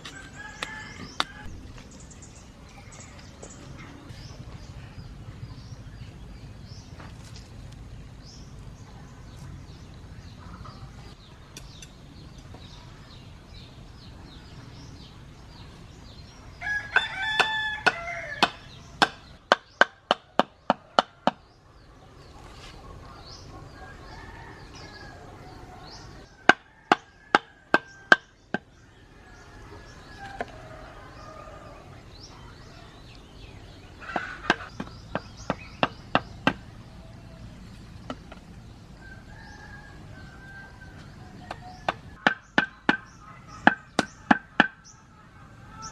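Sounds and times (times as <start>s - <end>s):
rooster crowing: 0.0s - 1.8s, 16.6s - 18.7s, 23.8s - 28.3s, 29.0s - 33.0s, 39.0s - 42.2s
chickens clucking: 29.2s - 39.2s.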